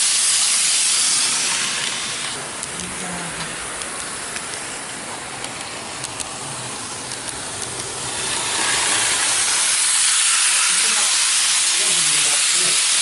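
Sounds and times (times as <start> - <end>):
model train rushing hiss: 0.0 - 2.4, 7.8 - 13.0.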